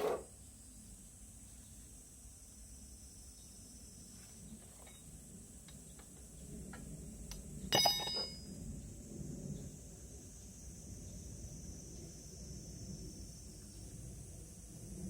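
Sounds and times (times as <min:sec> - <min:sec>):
metal object clanking and ringing: 0:07.7 - 0:08.5.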